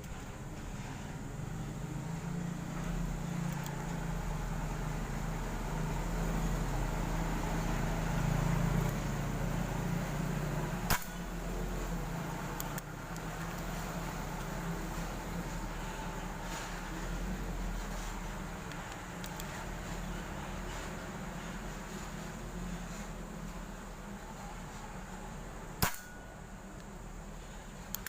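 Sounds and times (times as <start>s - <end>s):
steady low hum: 0.0s - 28.0s
air rifle shot: 10.9s - 11.3s, 25.8s - 26.2s.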